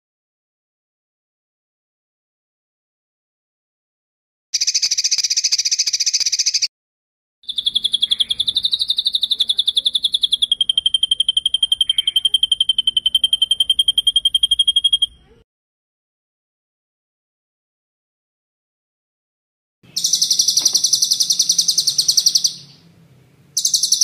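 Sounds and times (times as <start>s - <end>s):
short buzzy bird trill: 19.9s - 22.8s.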